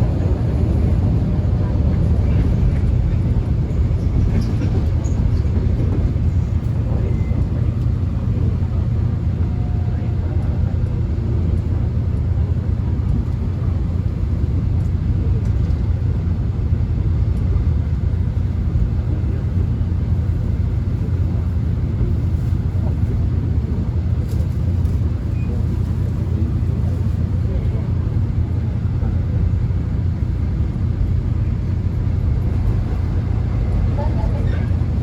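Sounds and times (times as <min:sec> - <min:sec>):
subway train rumble: 0:00.0 - 0:35.0.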